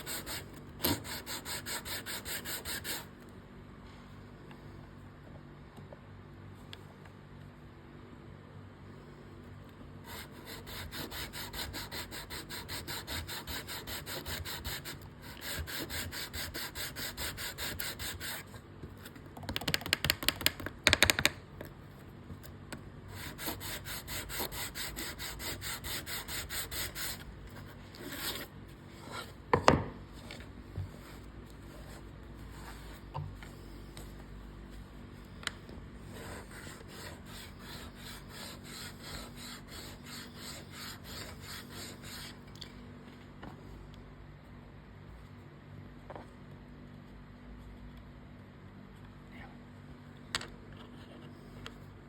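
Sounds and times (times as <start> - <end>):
sanding bone guitar nut: 10.2 - 18.4.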